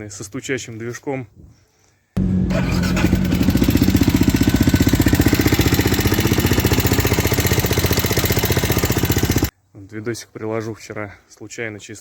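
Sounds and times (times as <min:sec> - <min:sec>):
motorcycle engine idling: 0:02.2 - 0:09.5.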